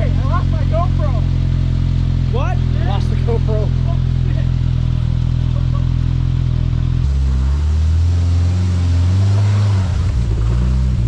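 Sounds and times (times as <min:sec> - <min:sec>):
vehicle engine idling and revving: 0:00.0 - 0:11.0.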